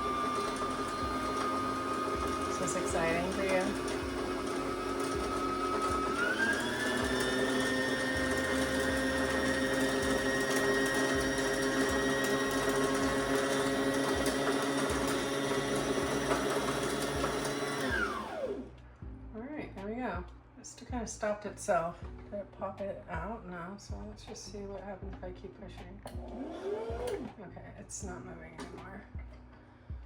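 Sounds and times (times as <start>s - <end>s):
sewing machine motor whirring: 0.0s - 18.6s, 26.2s - 27.3s.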